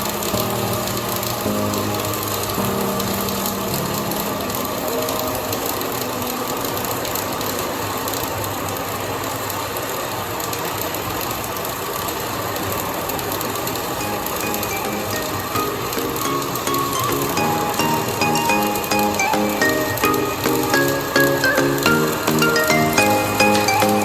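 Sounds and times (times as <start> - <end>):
welding arc crackling: 12.9 - 24.0.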